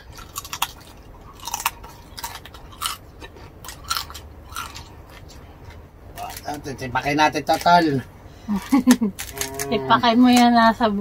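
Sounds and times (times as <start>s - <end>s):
crackling bites: 0.0s - 5.4s
people chewing: 0.0s - 10.8s.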